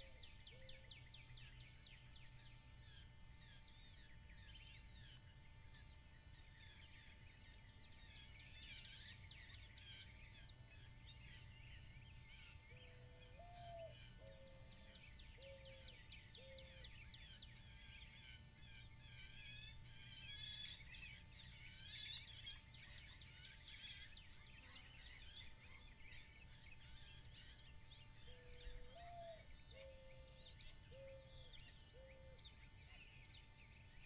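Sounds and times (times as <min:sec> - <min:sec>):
faint steady hum: 0:00.0 - 0:34.0
small birds chirping and trilling: 0:00.0 - 0:34.0
short low bird calls: 0:28.2 - 0:33.3.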